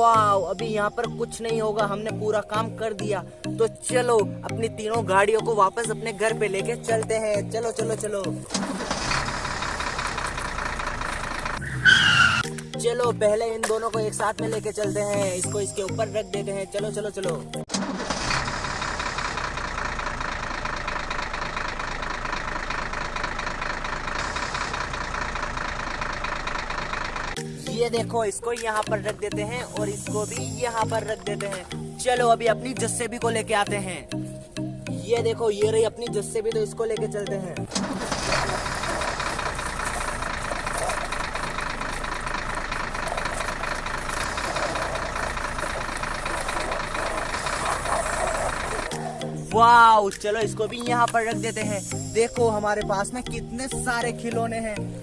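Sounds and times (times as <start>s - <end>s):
engine-like rumble with rattle: 8.1s - 12.4s, 17.7s - 27.9s, 37.7s - 49.2s.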